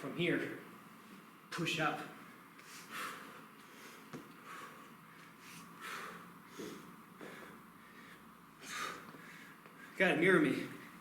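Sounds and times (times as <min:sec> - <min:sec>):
man breathing hard: 0:02.6 - 0:10.0.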